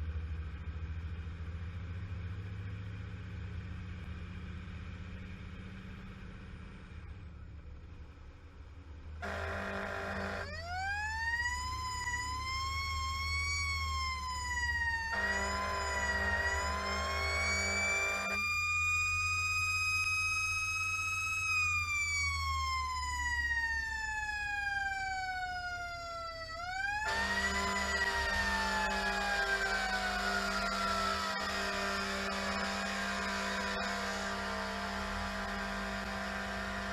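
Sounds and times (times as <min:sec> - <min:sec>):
horn blasts: 0:09.2 - 0:10.6, 0:15.1 - 0:18.5, 0:27.0 - 0:36.9
fire engine siren wailing: 0:09.2 - 0:36.9.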